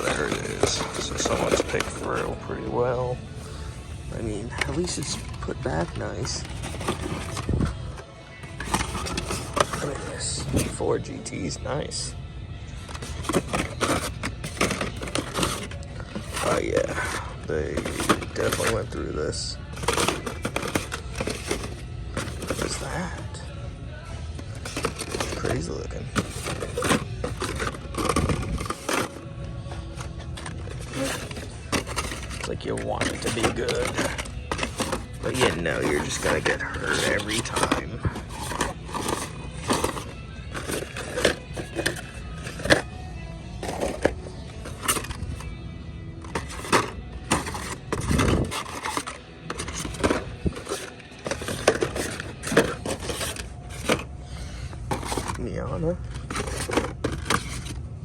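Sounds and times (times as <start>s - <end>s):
toy cars clacking and scraping: 0.0s - 3.1s, 4.1s - 12.1s, 12.8s - 23.4s, 24.3s - 43.0s, 43.6s - 45.6s, 46.2s - 55.5s, 56.1s - 57.8s
faint background music: 0.0s - 58.0s
plastic packaging rustling and knocking: 12.9s - 18.9s, 19.7s - 22.9s, 24.6s - 29.2s, 30.0s - 42.9s, 46.3s - 54.1s.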